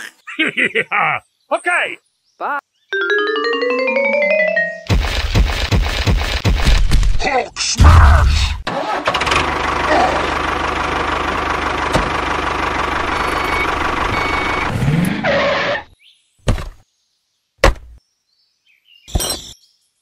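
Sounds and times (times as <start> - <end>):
tractor engine running: 8.7 - 15.8.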